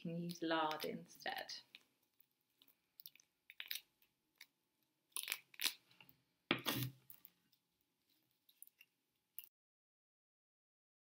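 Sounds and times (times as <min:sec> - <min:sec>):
spoon scraping pine cone: 0:00.1 - 0:07.3.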